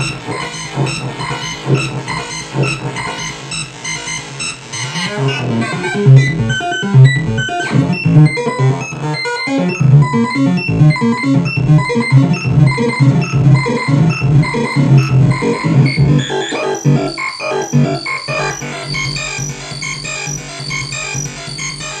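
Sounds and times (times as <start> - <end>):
synthesizer lead line: 0.0 - 22.0
low synth bass: 9.8 - 18.0
rising synth sweep: 10.3 - 19.1.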